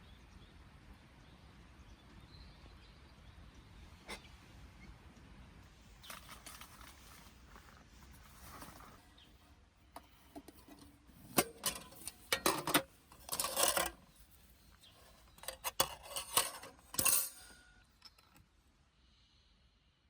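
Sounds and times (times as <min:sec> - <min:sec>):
small hard objects clinking: 0:10.5 - 0:18.4.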